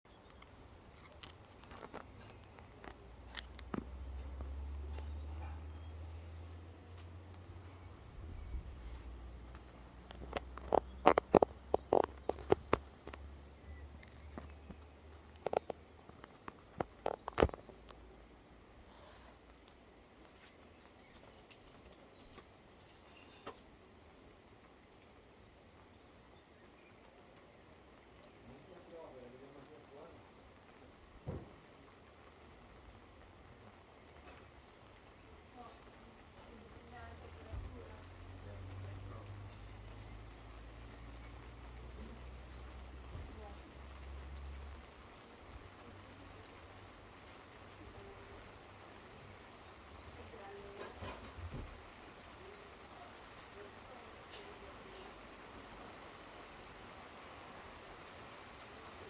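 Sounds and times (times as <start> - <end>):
insects chirring: 0.1 - 59.0.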